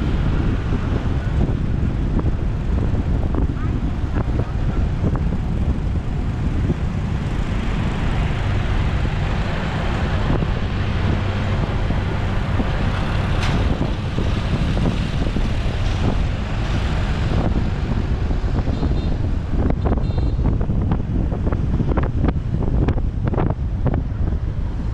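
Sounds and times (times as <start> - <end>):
road noise: 0.0 - 24.9
wind buffeting microphone: 0.0 - 24.9.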